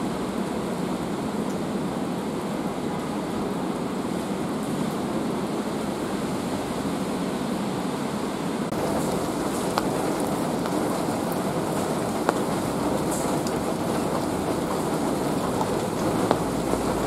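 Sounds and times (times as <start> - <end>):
rain hissing: 0.0 - 17.0
sharp drip ticks: 8.7 - 17.0.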